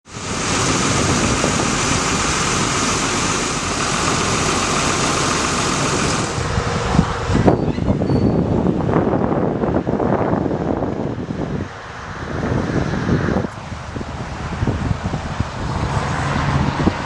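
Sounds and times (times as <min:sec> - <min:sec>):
truck engine idling: 0:00.0 - 0:07.6
gusty wind on microphone: 0:00.0 - 0:17.0.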